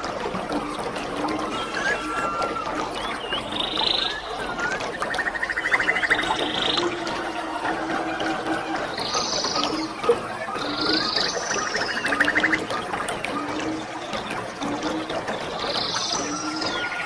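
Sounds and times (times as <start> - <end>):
waterfall rushing: 1.5 - 2.4
animal chirps and trills: 1.5 - 2.5.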